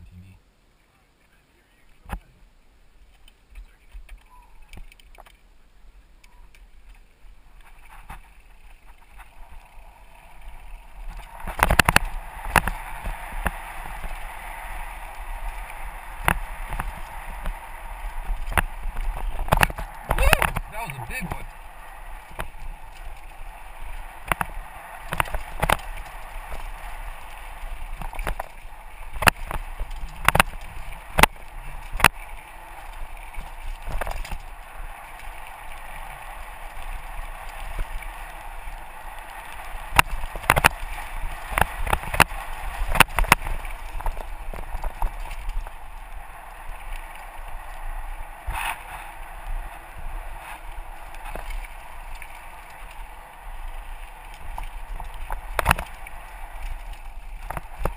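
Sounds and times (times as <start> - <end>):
bike clattering over bumps: 6.4 - 47.5
tyre and wind rush: 7.2 - 57.9.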